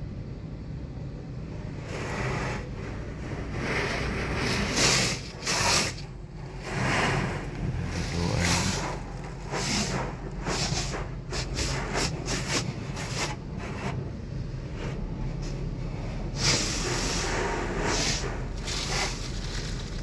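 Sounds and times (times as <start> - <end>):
steady low hum: 0.0 - 20.0
pressure washer spraying: 4.4 - 13.6, 16.3 - 20.0.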